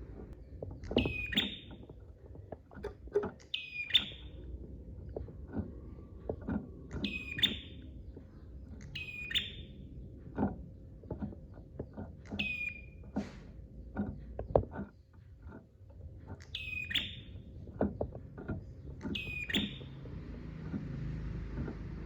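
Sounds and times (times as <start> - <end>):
bird calling: 1.0 - 1.8, 2.8 - 4.4, 7.0 - 7.8, 8.8 - 9.8, 12.3 - 13.0, 16.4 - 17.5, 19.0 - 20.1
dry clicking bird notes: 6.9 - 9.8, 11.1 - 13.2, 16.3 - 22.0.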